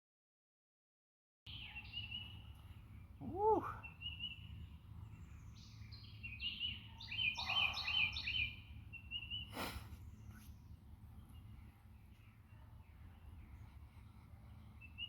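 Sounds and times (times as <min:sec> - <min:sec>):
songbird singing: 0:01.5 - 0:15.0
low background rumble: 0:02.0 - 0:15.0.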